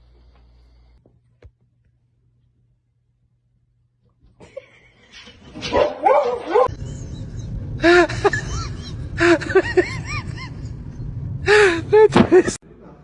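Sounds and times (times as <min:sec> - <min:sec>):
dog yelping barks: 0:05.6 - 0:06.7.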